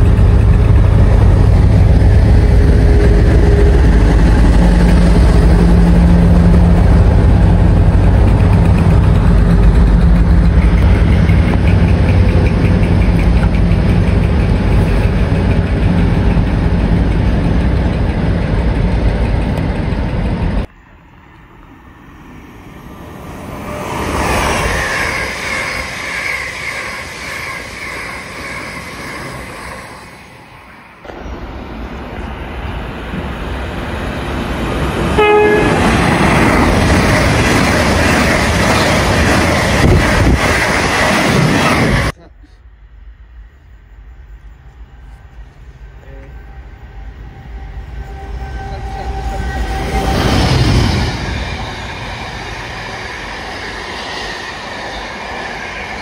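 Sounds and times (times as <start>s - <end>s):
diesel locomotive engine: 0.0s - 56.0s
train passing at speed: 0.0s - 56.0s
train horn: 2.7s - 4.0s, 35.2s - 36.1s, 46.0s - 51.2s.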